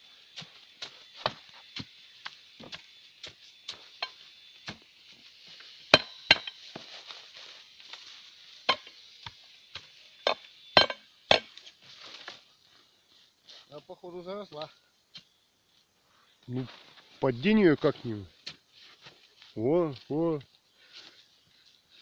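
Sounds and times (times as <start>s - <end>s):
chopping strikes into wood: 0.4s - 1.9s, 2.6s - 3.8s, 5.9s - 6.6s, 8.7s - 11.6s.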